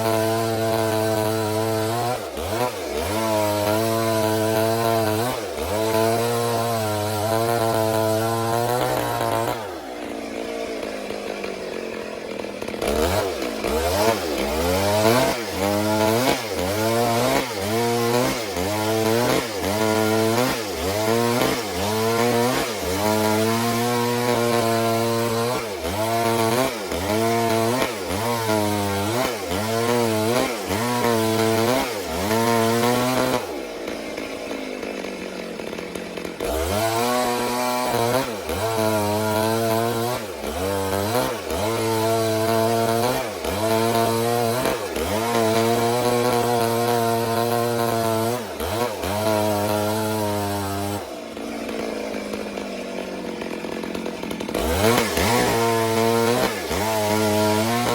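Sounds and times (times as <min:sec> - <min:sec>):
chainsaw cutting log: 0:00.0 - 0:57.9.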